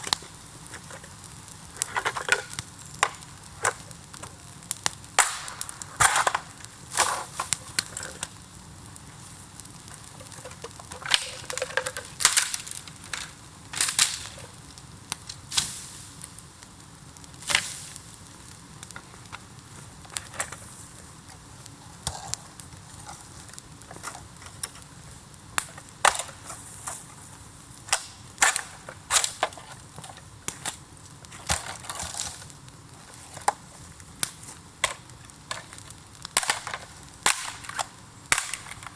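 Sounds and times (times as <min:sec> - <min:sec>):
bamboo bonfire crackling: 0:00.0 - 0:38.9
bamboo sections bursting with pops: 0:00.0 - 0:38.9.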